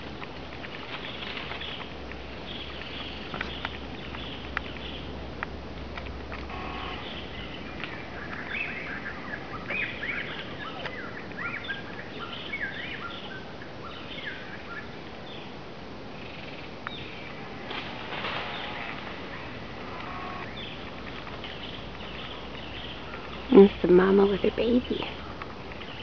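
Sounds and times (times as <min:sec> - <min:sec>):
steady background hiss: 0:00.0 - 0:26.0
birds chirping and calling: 0:06.5 - 0:15.5, 0:18.2 - 0:26.0.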